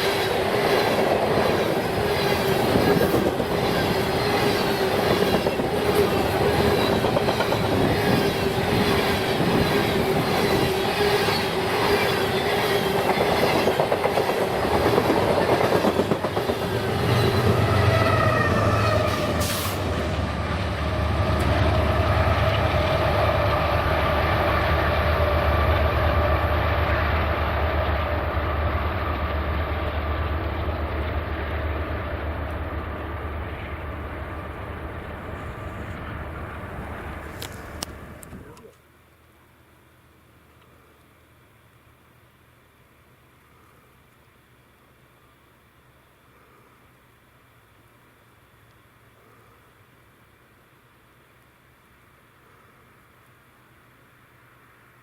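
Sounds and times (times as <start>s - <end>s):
train wheels clattering: 0.0s - 18.0s
low train rumble: 0.0s - 38.7s.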